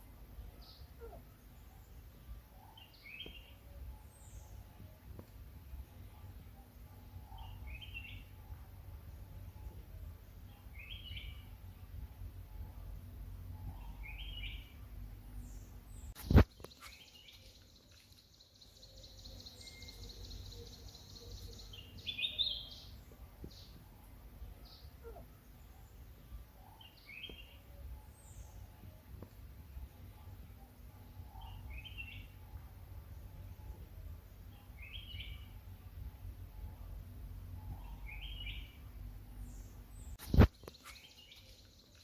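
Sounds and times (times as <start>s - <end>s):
bird calling: 0.8s - 1.3s, 24.7s - 25.3s.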